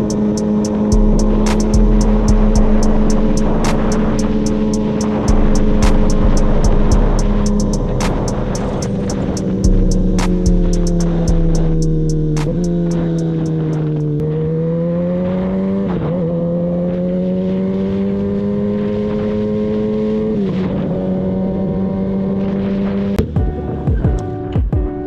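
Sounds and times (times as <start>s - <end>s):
music with a beat: 0.0s - 14.1s, 23.2s - 25.0s
motorcycle engine running: 0.0s - 14.6s.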